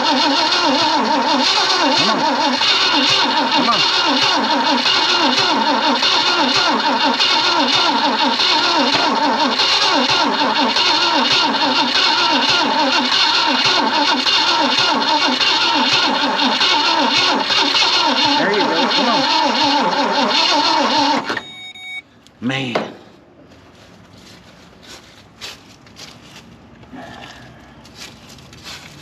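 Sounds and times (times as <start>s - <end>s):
starter motor cranking engine: 0.0s - 21.5s.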